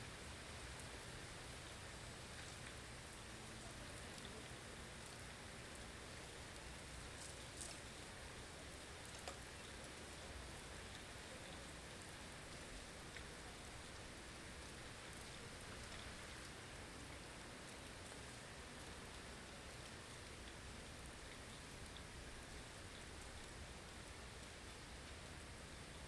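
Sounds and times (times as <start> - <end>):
faint ticks: 2.3 - 8.1, 9.0 - 13.4.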